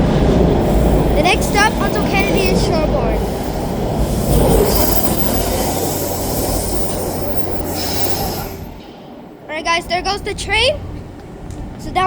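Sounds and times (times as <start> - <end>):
subway train rumble: 0.0 - 12.0
train wheels squealing: 0.6 - 9.0.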